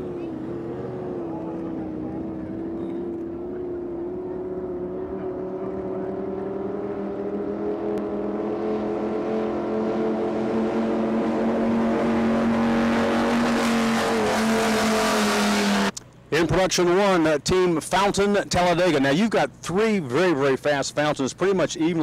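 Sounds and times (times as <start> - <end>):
race boat engines droning: 0.0 - 22.0.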